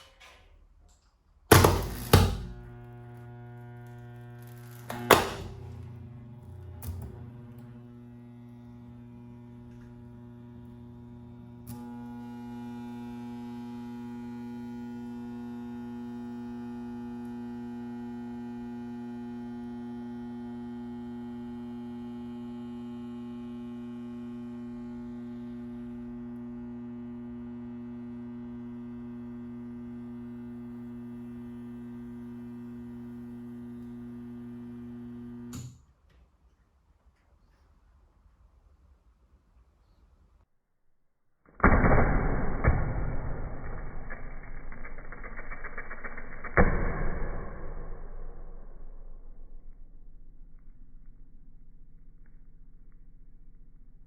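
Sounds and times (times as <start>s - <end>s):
clicks: 0.0s - 8.0s
fan motor humming: 1.5s - 35.7s.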